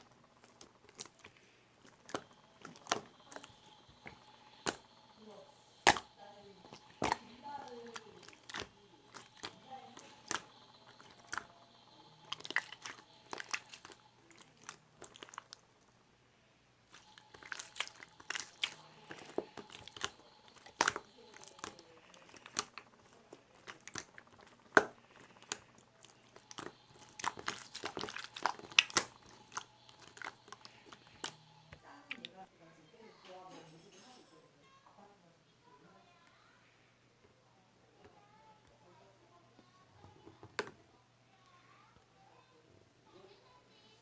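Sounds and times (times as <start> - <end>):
sharp clicks and crunchy taps: 0.0 - 5.1, 16.9 - 32.3.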